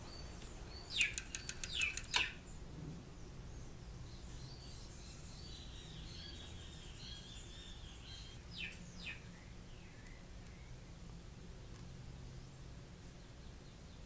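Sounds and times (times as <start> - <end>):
birds chirping and calling: 0.0 - 2.6, 3.5 - 10.8
rapid high ticks: 0.4 - 2.4.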